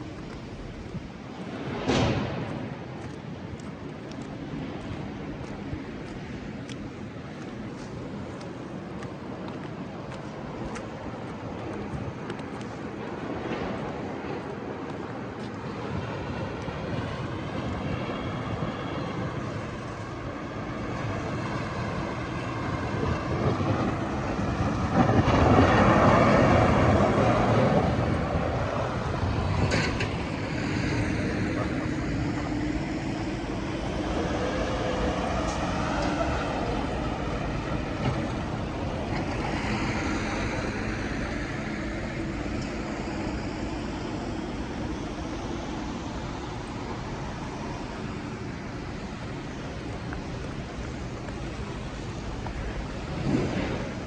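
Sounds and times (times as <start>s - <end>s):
street traffic: 0.0s - 54.0s
snow plow truck passing: 16.0s - 54.0s.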